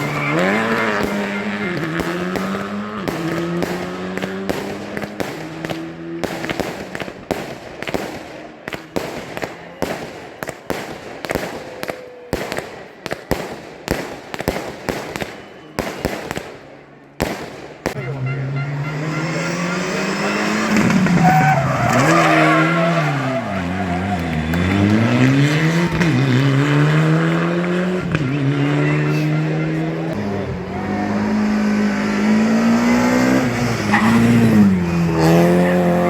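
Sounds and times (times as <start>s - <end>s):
rally car engine upshifting: 0.0s - 7.2s, 18.0s - 36.0s
exhaust pops and bangs: 0.0s - 11.5s, 20.4s - 28.4s.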